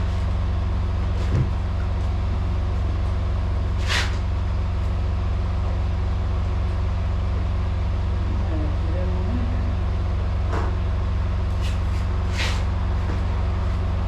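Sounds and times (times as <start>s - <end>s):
diesel truck engine idling: 0.0s - 14.0s
short air hiss: 12.3s - 12.7s.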